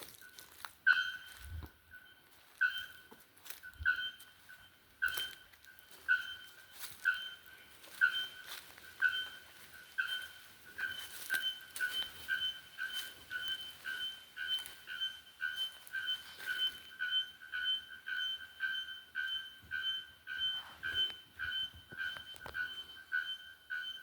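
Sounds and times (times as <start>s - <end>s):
bellbird ringing calls: 0.0s - 24.0s.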